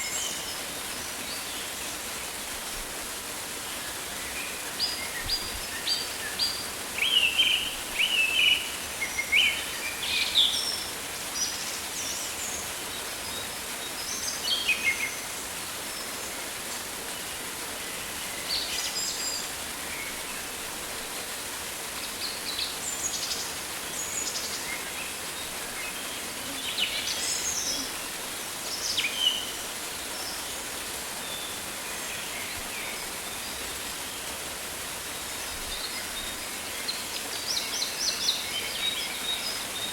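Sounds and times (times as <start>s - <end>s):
rain hissing: 0.0s - 39.9s.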